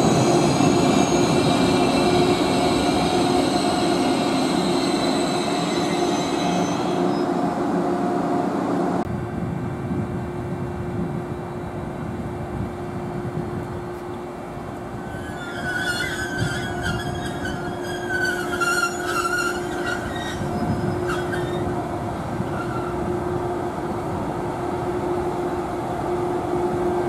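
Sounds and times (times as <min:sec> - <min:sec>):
wavering squeal: 0:00.0 - 0:07.4, 0:15.0 - 0:21.8, 0:22.4 - 0:23.0
high train whine: 0:00.0 - 0:27.0
train rumbling past: 0:00.0 - 0:27.0.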